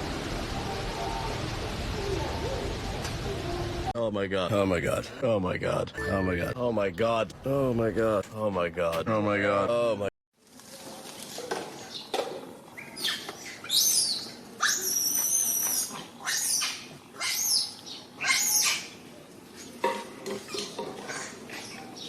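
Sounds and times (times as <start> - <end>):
baby monkey screaming: 13.0 - 19.0.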